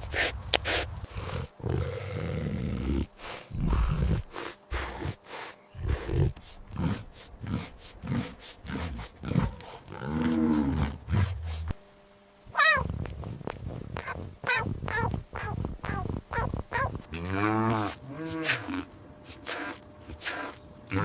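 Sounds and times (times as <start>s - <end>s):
lion roaring and grunting: 5.8s - 11.7s.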